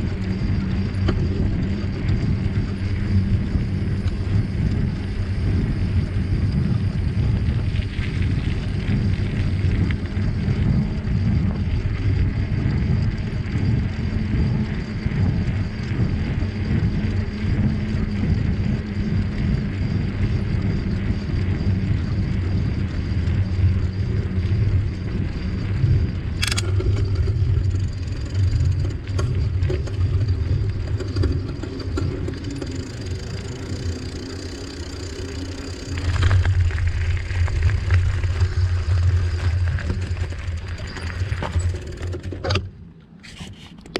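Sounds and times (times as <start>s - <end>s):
wind buffeting microphone: 0.0s - 42.6s
bicycle tyres rolling on trail: 0.0s - 43.7s
sharp click: 26.4s - 26.8s.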